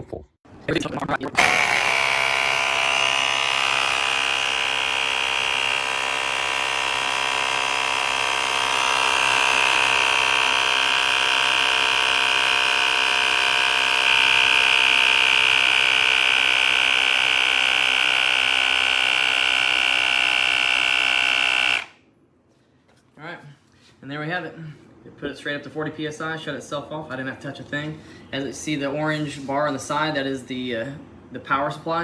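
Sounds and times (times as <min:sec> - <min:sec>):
electric air compressor running: 0:01.4 - 0:22.0.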